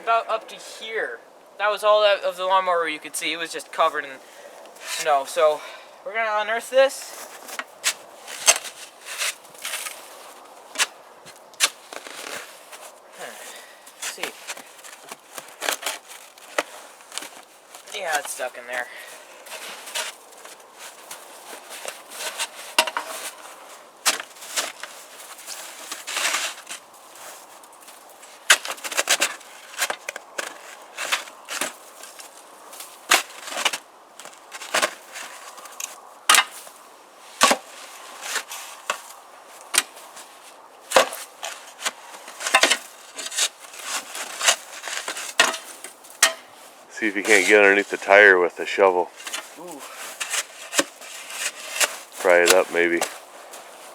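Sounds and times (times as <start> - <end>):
chopping at frozen snow and ice: 40.9 - 46.5.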